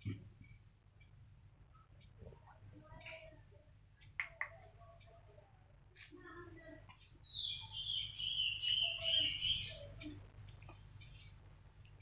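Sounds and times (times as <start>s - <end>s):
bird twittering: 7.2s - 10.1s.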